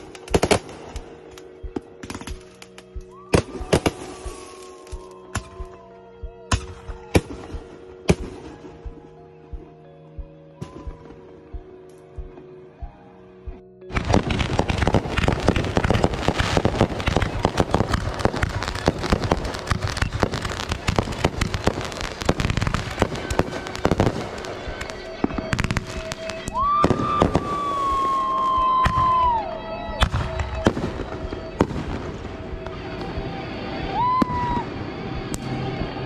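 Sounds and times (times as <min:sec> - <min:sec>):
firework bangs and crackling: 0:00.0 - 0:05.8, 0:13.9 - 0:36.0
high whistling tone: 0:21.8 - 0:36.0.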